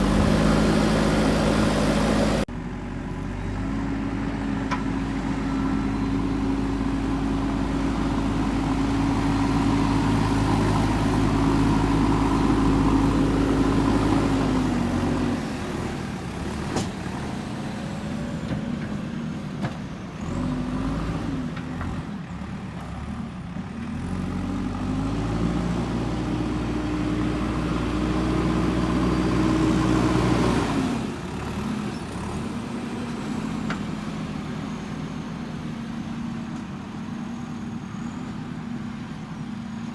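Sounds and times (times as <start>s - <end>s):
diesel engine revving under load: 0.0s - 39.9s.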